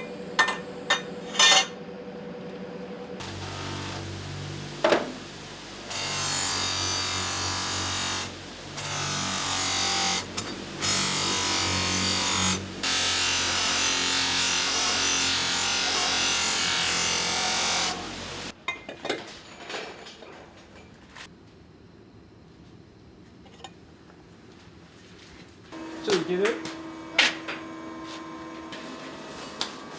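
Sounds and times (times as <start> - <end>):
power tool hissing on metal: 3.2 - 18.5.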